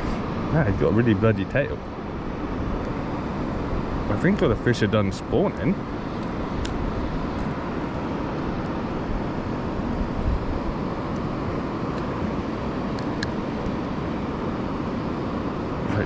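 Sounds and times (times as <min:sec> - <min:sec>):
wind buffeting microphone: 0:00.0 - 0:12.2.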